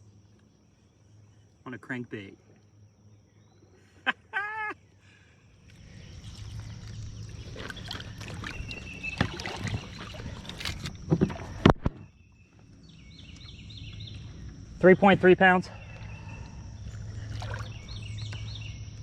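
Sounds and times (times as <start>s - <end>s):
water splashing against kayak: 5.8s - 12.2s, 16.0s - 18.0s.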